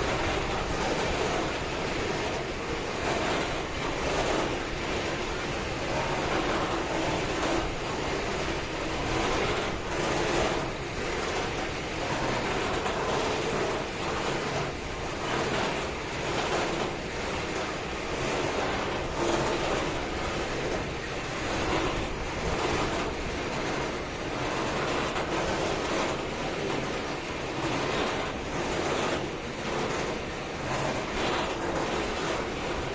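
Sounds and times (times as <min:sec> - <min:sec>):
locomotive and freight wagons rumbling: 0:00.0 - 0:32.9.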